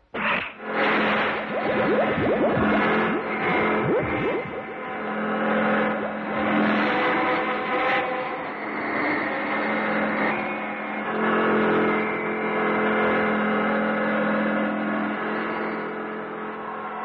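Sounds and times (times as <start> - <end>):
cartoon racing boat engines droning: 1.2 - 7.7.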